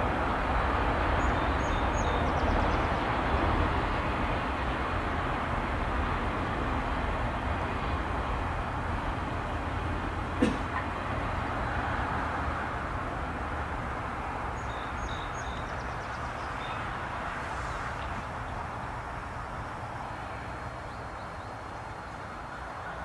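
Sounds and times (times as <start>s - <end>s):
train rumbling past: 0.0s - 23.0s.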